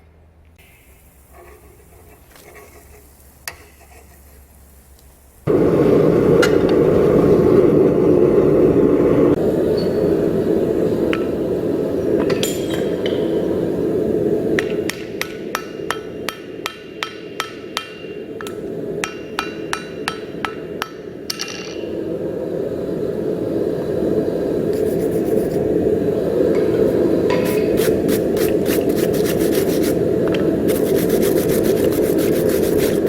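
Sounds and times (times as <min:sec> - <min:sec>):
steady rushing noise: 0:05.4 - 0:33.0
hammer ringing on anvil: 0:12.3 - 0:13.4, 0:14.6 - 0:21.9.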